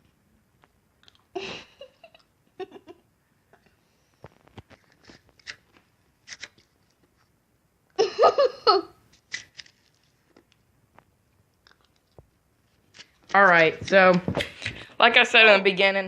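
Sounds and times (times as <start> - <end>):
spoon crunching shaved ice: 5.0 - 7.0, 9.1 - 10.6.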